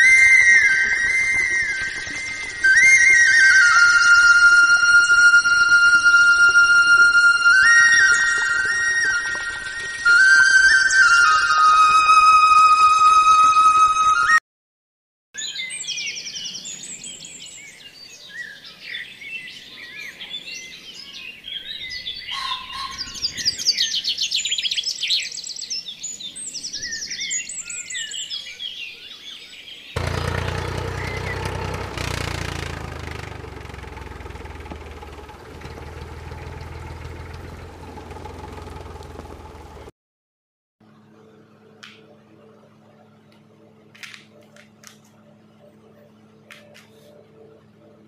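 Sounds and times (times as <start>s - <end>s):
small birds chirping: 15.4s - 39.8s.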